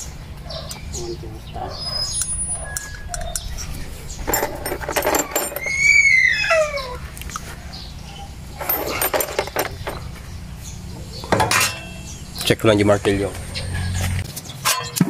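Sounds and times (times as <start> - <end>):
steady low hum: 0.0 - 14.2
knocks and clatter: 2.8 - 6.0, 8.5 - 10.3
dog whining: 4.6 - 10.1.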